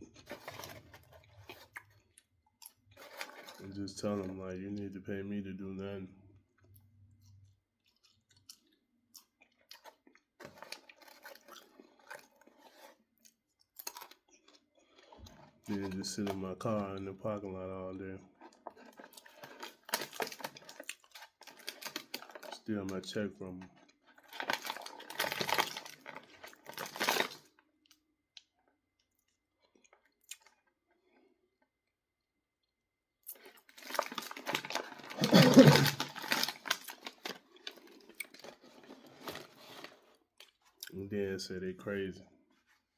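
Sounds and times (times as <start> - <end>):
person chewing popcorn: 0.0 - 4.9, 6.4 - 17.5, 18.2 - 31.9, 32.6 - 41.0.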